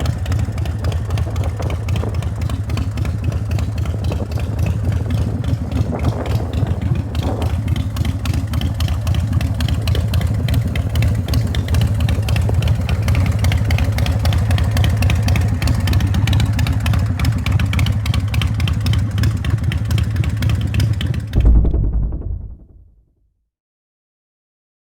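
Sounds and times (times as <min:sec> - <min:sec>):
motorcycle engine idling: 0:00.0 - 0:22.7
low thump: 0:21.4 - 0:23.0.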